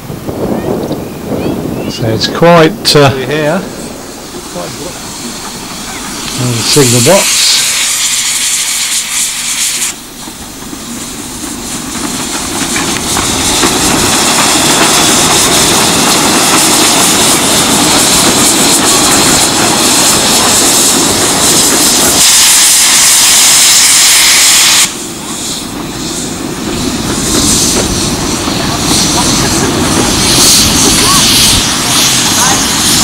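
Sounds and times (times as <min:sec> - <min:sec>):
wind buffeting microphone: 0:00.0 - 0:07.8, 0:10.4 - 0:22.4, 0:25.8 - 0:33.0.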